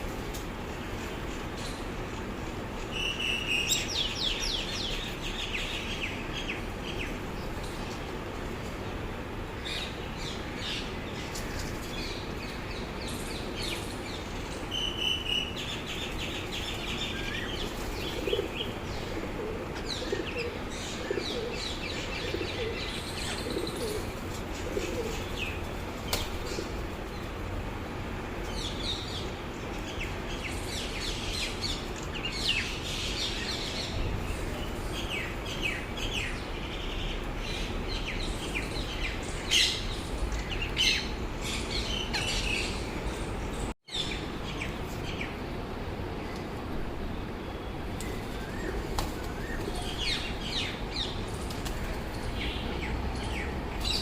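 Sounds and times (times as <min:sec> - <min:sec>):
pigeons cooing: 0:17.6 - 0:25.6
wings flapping: 0:48.0 - 0:49.7.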